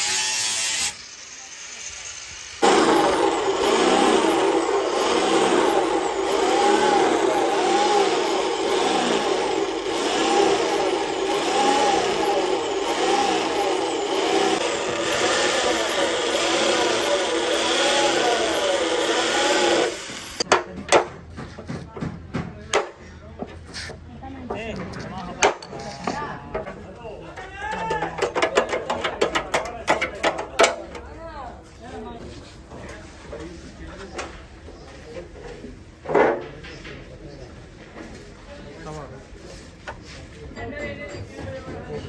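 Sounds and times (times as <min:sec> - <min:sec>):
power tool running against metal: 0:00.0 - 0:20.4.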